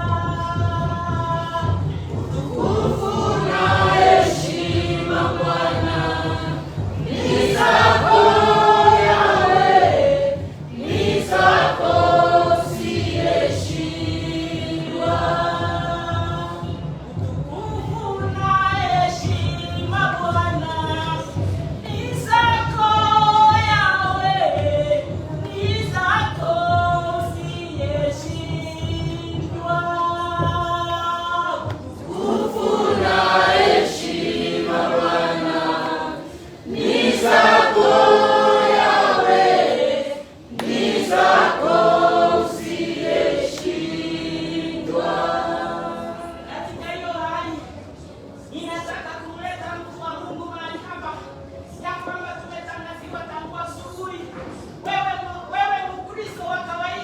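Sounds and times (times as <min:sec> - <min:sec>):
choir singing gospel song: 0:00.0 - 0:16.8, 0:31.6 - 0:47.2
low musical backing: 0:00.0 - 0:26.7, 0:31.7 - 0:46.8.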